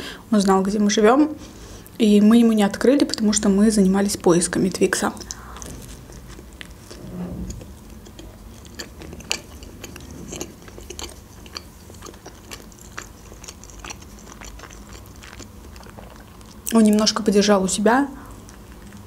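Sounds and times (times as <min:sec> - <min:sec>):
crunchy chewing of pizza: 0:05.0 - 0:17.2, 0:18.2 - 0:19.0.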